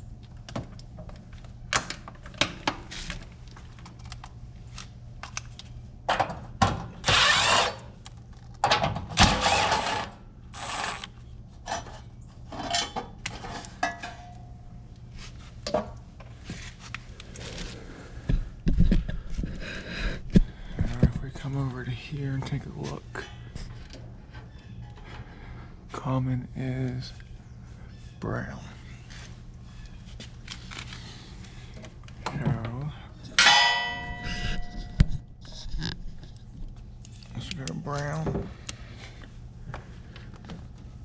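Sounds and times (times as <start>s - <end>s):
steady low hum: 0.0s - 41.0s
power tool whirring: 7.0s - 7.9s, 9.2s - 11.2s.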